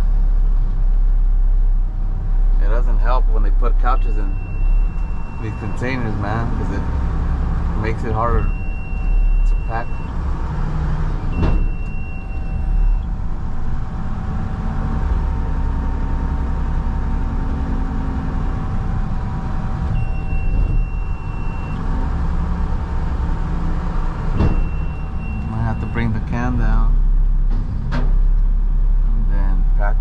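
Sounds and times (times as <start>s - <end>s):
truck diesel engine running: 0.0s - 30.0s
hydraulic whine: 3.8s - 26.6s
long high-pitched beeps: 4.2s - 7.1s, 7.8s - 10.2s, 11.3s - 13.1s, 20.0s - 21.9s, 24.4s - 26.1s.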